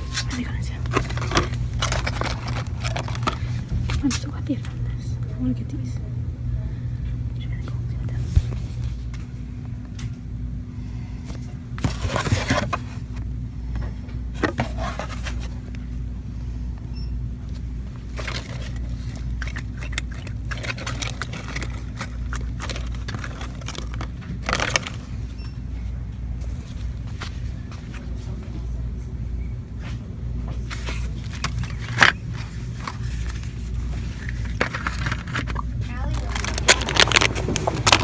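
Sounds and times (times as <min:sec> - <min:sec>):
scraping and rustling: 0:00.0 - 0:04.2, 0:11.3 - 0:13.7, 0:14.3 - 0:16.0, 0:17.5 - 0:25.8, 0:29.8 - 0:38.0
ventilation hum: 0:00.0 - 0:38.0.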